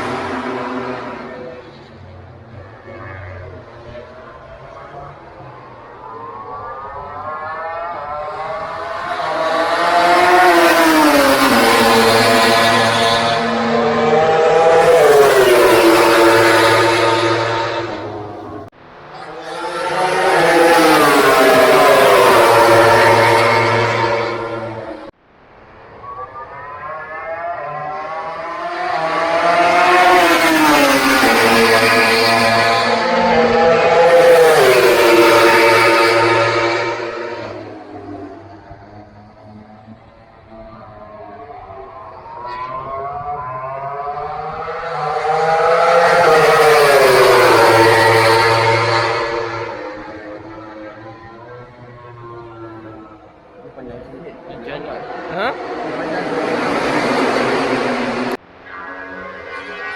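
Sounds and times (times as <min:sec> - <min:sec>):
racing motorcycle engine revving: 0:00.0 - 0:25.1, 0:26.5 - 0:59.9.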